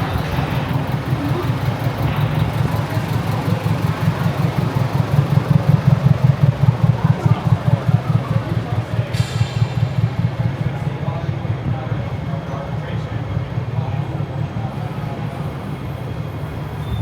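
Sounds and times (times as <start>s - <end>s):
vehicle engine rumbling: 0.0s - 13.8s.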